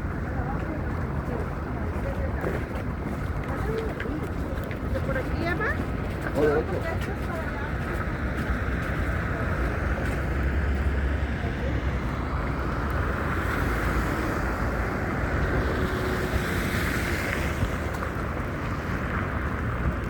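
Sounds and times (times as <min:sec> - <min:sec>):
city street noise: 0:00.0 - 0:20.0
wind buffeting microphone: 0:00.0 - 0:20.0.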